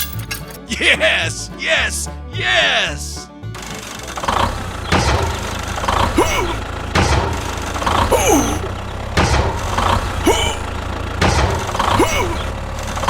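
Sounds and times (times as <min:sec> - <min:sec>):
small tractor engine running: 0:03.6 - 0:13.0.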